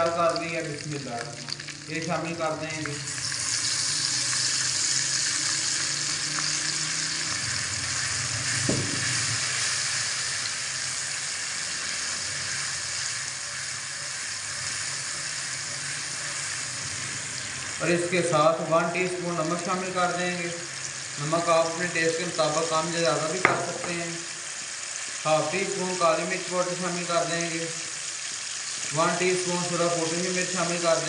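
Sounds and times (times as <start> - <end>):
paste sizzling in hot oil: 0.0 - 31.0
knock: 8.7 - 9.1, 23.5 - 23.9.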